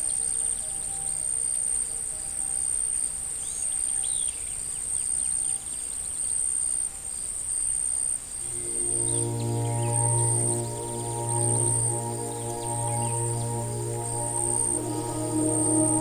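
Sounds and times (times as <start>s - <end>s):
soft sustained music tone: 0.0s - 4.6s, 8.4s - 16.0s
insects chirring: 0.0s - 16.0s.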